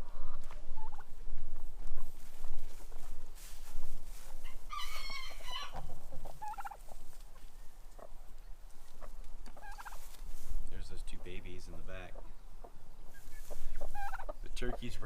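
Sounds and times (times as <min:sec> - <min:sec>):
birds moving: 0:00.0 - 0:15.0
chickens clucking: 0:00.0 - 0:15.0
poultry wavering call: 0:04.4 - 0:06.9, 0:12.2 - 0:14.8.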